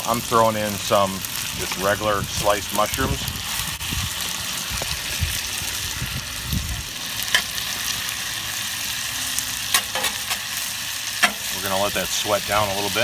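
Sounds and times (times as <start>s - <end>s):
vegetables sizzling in oil: 0.0s - 13.0s
utensil clicking against pan: 11.2s - 11.4s.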